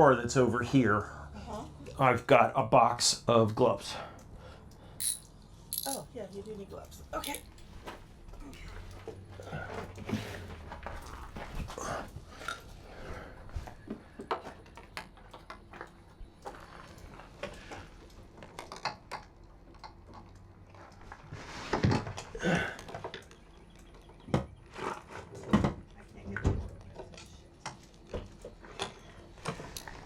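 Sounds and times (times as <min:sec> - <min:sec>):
metallic tool clinks: 0:05.0 - 0:06.1, 0:07.2 - 0:07.7.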